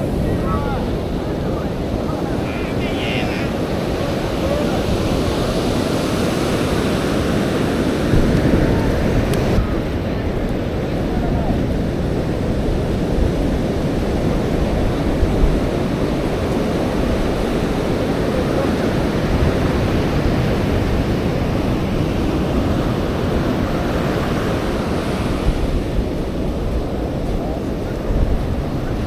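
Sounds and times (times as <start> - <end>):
ocean surf breaking on beach: 0.0 - 29.0
wind buffeting microphone: 0.0 - 29.0.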